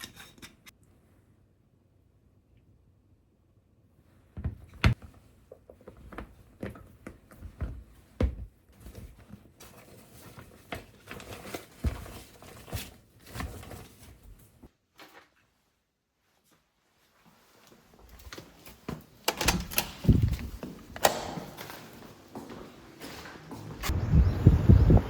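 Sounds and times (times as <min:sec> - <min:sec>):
rustling and crinkling: 0:04.6 - 0:19.2.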